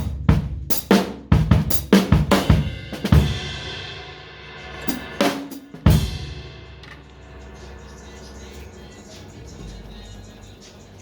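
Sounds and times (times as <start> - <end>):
snare and bass drum hits: 0.0 - 3.8, 4.7 - 6.9
cymbal ringing: 2.5 - 10.2.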